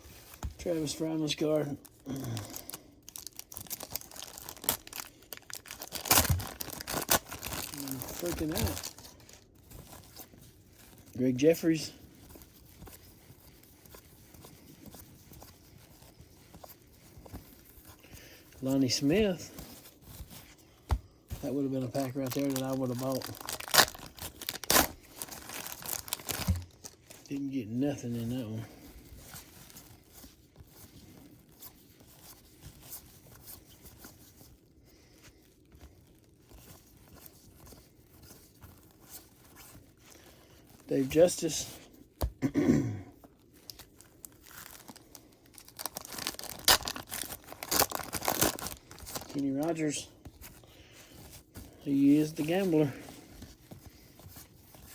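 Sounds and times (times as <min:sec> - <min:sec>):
wrapper crinkling and tearing: 0:00.2 - 0:41.9, 0:43.2 - 0:54.9
cards clicking and rustling: 0:05.7 - 0:09.0.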